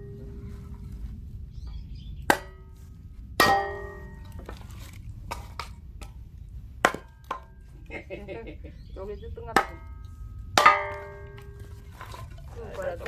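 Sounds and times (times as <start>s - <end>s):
axe splitting firewood: 3.3s - 6.2s, 6.8s - 7.6s, 9.6s - 12.3s
metallic clang: 3.4s - 4.5s, 9.6s - 11.7s.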